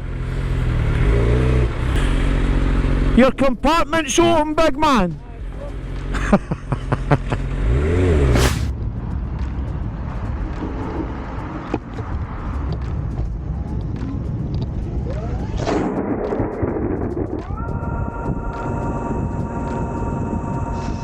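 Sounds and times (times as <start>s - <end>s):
motorcycle engine running: 0.0s - 15.0s
steady chord of tones: 1.7s - 6.2s, 17.5s - 21.0s
wind noise on microphone: 8.6s - 21.0s.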